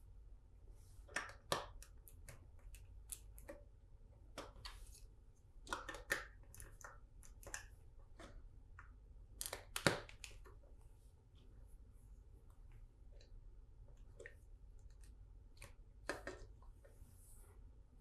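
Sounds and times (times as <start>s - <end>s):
plastic bricks clicking together: 5.6s - 7.7s.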